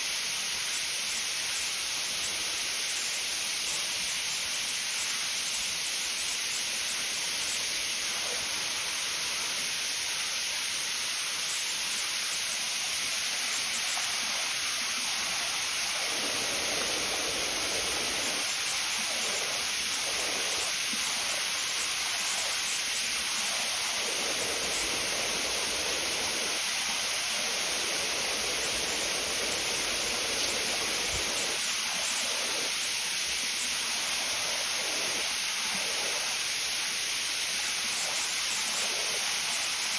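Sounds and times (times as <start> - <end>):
falling water rushing: 11.1 - 39.9.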